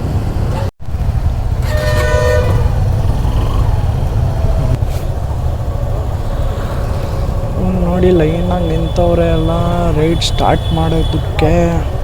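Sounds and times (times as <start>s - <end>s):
low rumble of traffic: 0.0s - 12.0s
vehicle horn: 1.5s - 3.0s, 8.3s - 11.8s.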